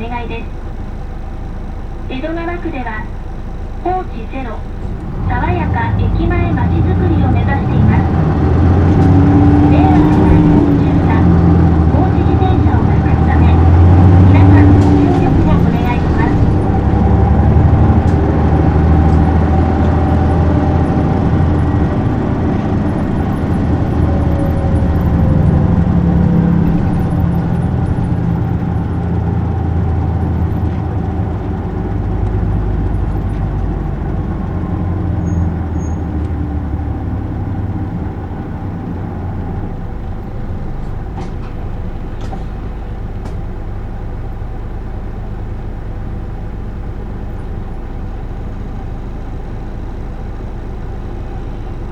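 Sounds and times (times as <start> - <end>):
bus diesel engine running: 0.0 - 51.9.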